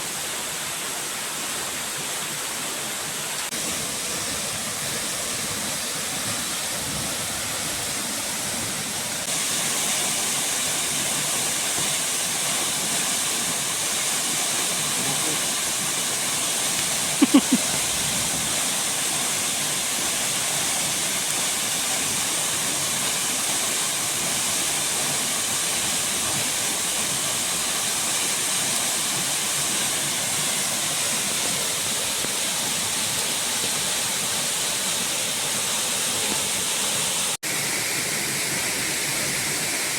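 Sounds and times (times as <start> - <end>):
waterfall rushing: 0.0 - 39.9
heavy rain: 14.4 - 19.2.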